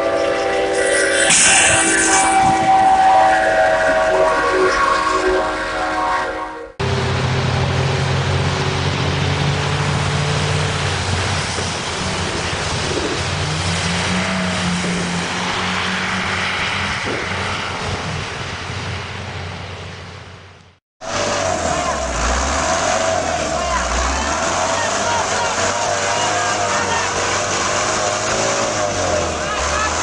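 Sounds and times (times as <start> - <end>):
loud rushing noise: 0.0 - 5.7, 21.0 - 30.0
heavy vehicle engine running: 6.7 - 30.0.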